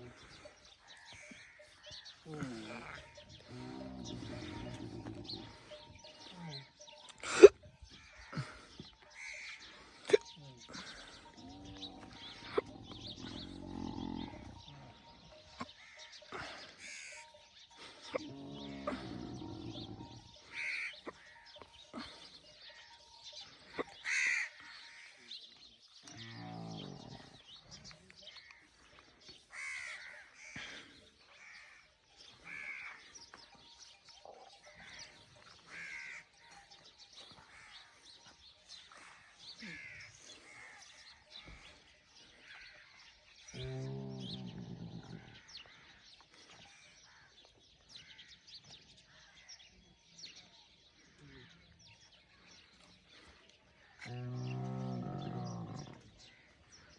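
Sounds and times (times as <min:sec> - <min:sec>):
crows cawing: 0:00.0 - 0:25.5, 0:28.3 - 0:33.6, 0:34.6 - 0:49.5
low-pitched animal call: 0:10.1 - 0:15.7, 0:18.1 - 0:21.2, 0:43.5 - 0:45.4, 0:54.0 - 0:56.2.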